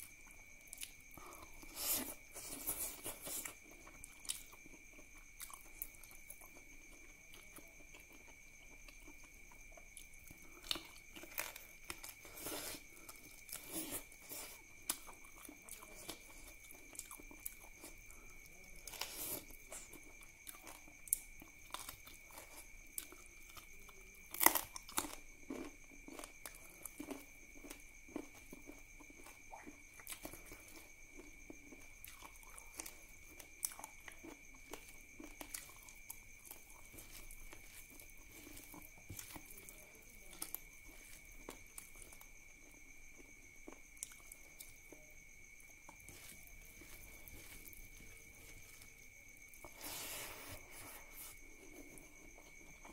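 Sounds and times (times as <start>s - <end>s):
faint steady high whine: 0.0s - 52.9s
food crunching: 0.3s - 52.9s
wet chewing and lip smacks: 24.6s - 39.7s, 43.2s - 44.9s.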